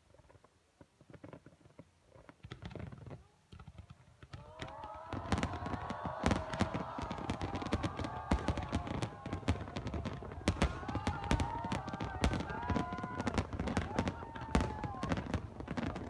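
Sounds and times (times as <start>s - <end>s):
fireworks popping and banging: 0.1s - 16.0s
fireworks whistling: 4.6s - 16.0s.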